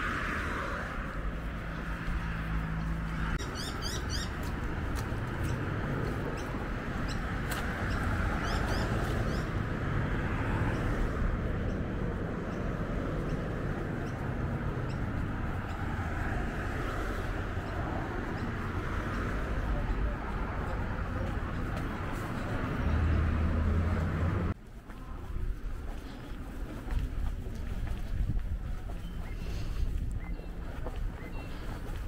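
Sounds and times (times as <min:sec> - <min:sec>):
small birds chirping: 0:01.6 - 0:09.6, 0:28.5 - 0:32.0.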